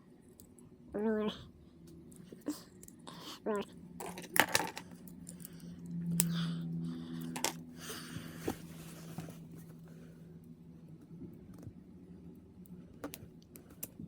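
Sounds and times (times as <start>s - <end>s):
low steady hum: 0.0s - 14.0s
plastic clicks and rattles: 4.0s - 5.5s.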